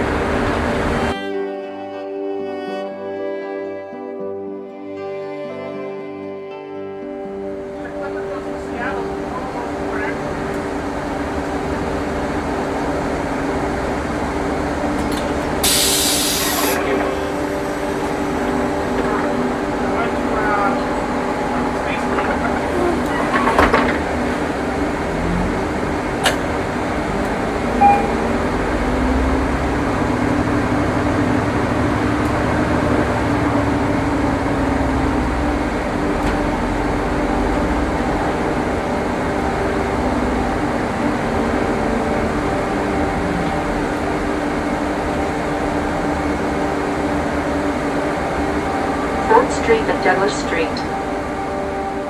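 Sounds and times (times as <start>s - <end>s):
bus engine and ventilation drone: 0.0s - 1.2s, 7.2s - 52.0s
short beep: 27.8s - 28.3s.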